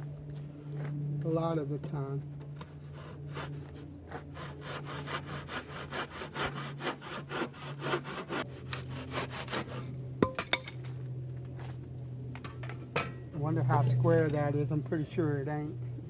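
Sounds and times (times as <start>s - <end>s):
handsaw cutting wood: 2.6s - 10.0s.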